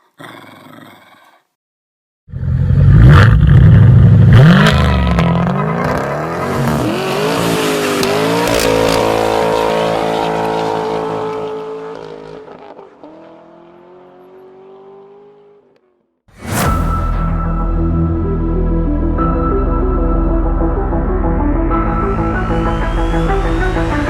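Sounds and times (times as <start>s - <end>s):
car engine revving: 2.5s - 16.0s.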